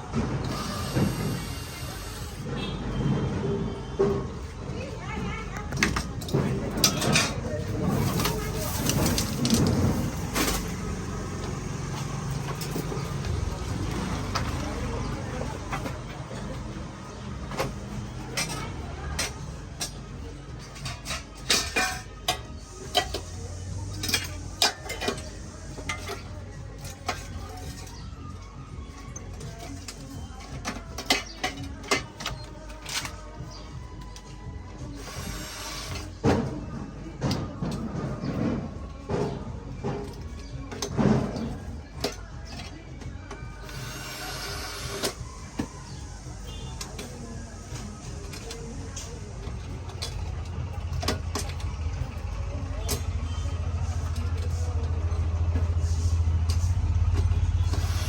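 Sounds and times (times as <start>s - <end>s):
metal parts clinking: 5.6s - 13.5s, 17.6s - 28.1s, 46.7s - 58.0s
hissy scraping: 53.4s - 58.0s.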